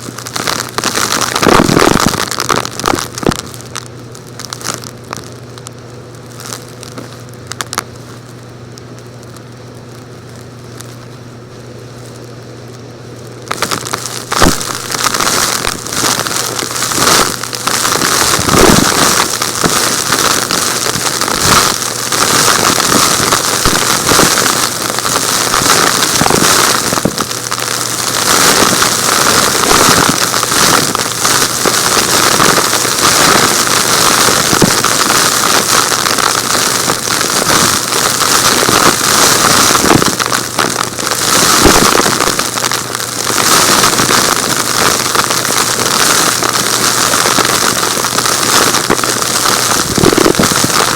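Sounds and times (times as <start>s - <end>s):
rocks rattling through vacuum: 49.8s - 50.9s.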